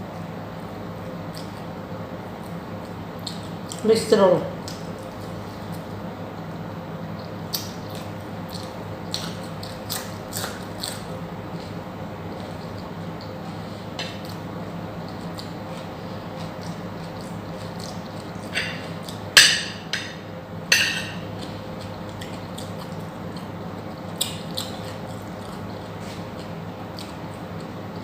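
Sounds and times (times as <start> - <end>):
steady low hum: 0.0 - 28.0
chewing and mouth noises: 1.2 - 3.8, 7.2 - 19.3, 21.2 - 28.0.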